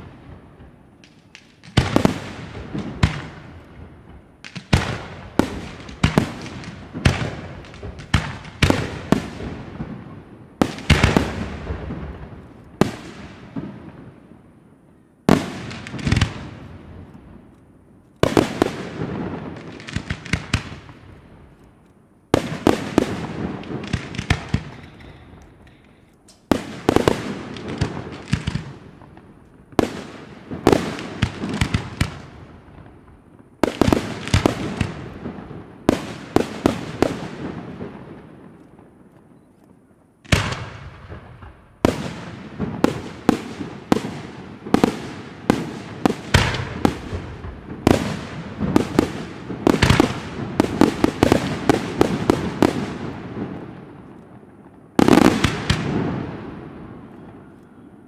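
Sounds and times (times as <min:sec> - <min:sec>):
firework shells bursting: 0:18.2 - 0:37.3, 0:38.4 - 0:56.3.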